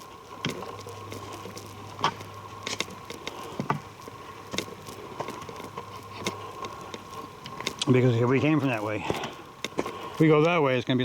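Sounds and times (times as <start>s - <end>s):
footsteps on forest trail: 0.0s - 11.0s.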